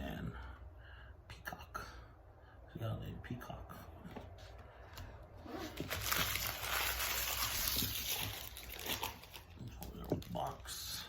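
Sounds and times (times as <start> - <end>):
foil wrapper crinkling and tearing: 5.6 - 10.7.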